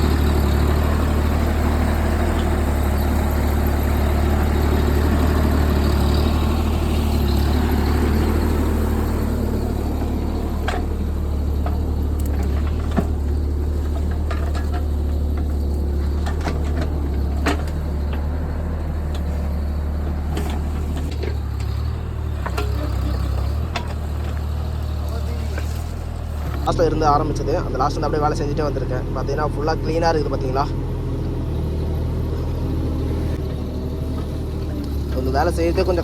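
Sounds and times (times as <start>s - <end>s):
excavator engine humming: 0.0s - 36.0s
sharp clicks and knocks: 20.1s - 26.7s.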